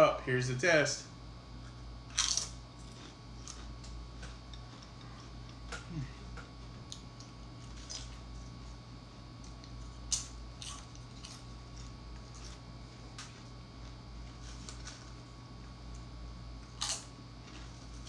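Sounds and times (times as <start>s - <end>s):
chips crunching: 2.1s - 8.6s, 9.4s - 15.4s, 16.6s - 18.0s.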